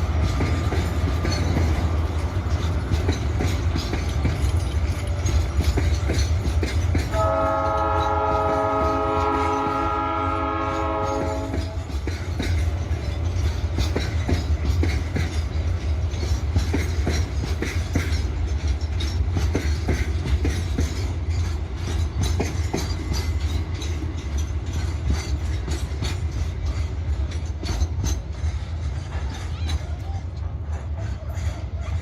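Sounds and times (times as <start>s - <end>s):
freight train rumbling: 0.0s - 32.0s
wheels clacking on rail joints: 0.0s - 32.0s.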